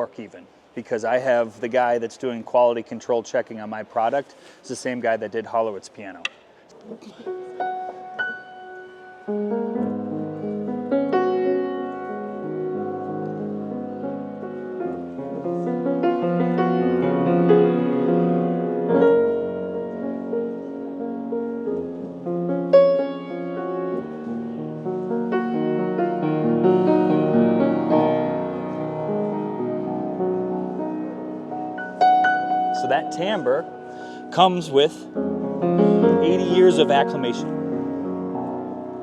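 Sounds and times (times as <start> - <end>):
grand piano piece: 7.0 - 39.0.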